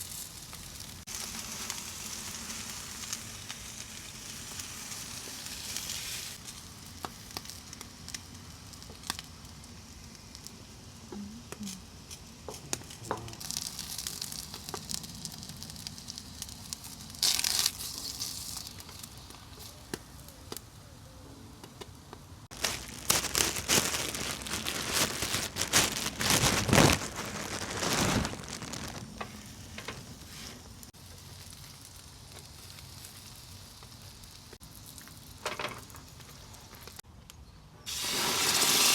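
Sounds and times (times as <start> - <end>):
food sizzling in a pan: 0.0 - 20.2, 28.7 - 37.0, 37.9 - 38.9.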